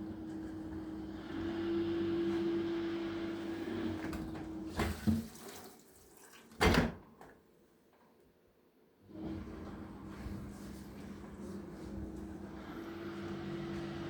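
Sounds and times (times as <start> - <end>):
dishwasher motor hum: 0.0 - 5.3, 9.1 - 14.0.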